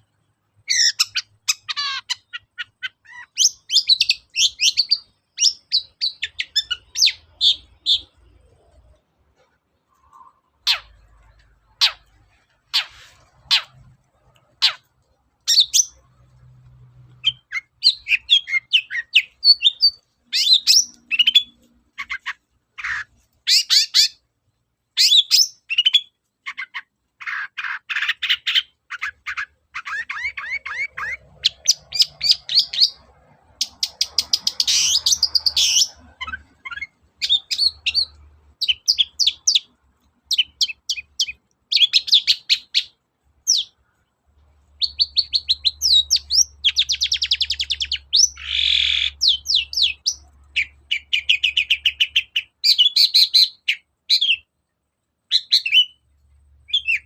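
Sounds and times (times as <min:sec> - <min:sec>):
bird singing chirps and trills: 0:17.1 - 0:24.2, 0:44.8 - 0:54.5, 0:56.7 - 0:57.0.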